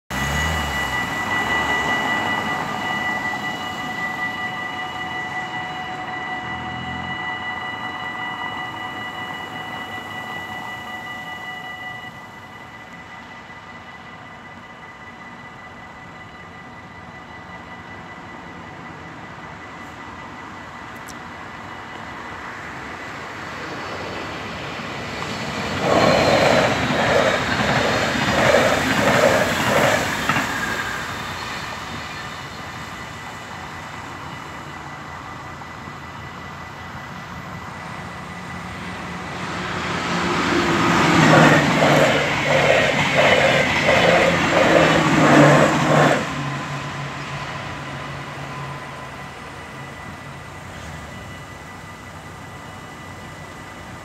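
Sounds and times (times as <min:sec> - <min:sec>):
train low hum: 0:00.0 - 0:54.0
crossing warning bell ringing: 0:00.1 - 0:54.0
train wheels clattering on rails: 0:23.8 - 0:33.3, 0:38.6 - 0:51.4.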